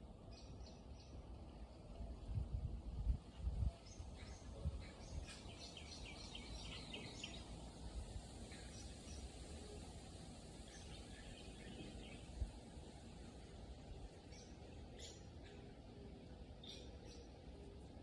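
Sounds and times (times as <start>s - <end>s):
low outdoor rumble: 0.0s - 18.0s
bird chirping: 3.8s - 7.5s, 16.5s - 17.8s.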